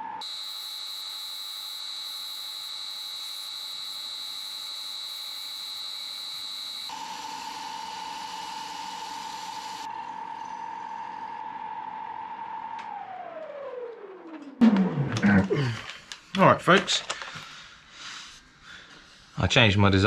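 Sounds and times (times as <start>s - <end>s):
wood lathe whining: 0.0s - 14.5s
abrasive paper hissing: 17.0s - 19.4s.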